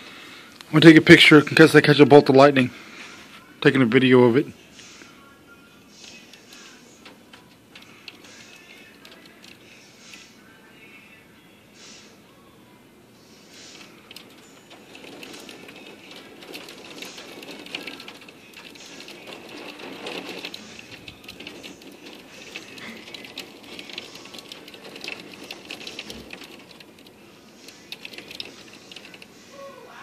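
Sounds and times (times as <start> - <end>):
rain falling: 6.0 - 9.6, 13.6 - 29.4
steady hiss: 13.0 - 30.0.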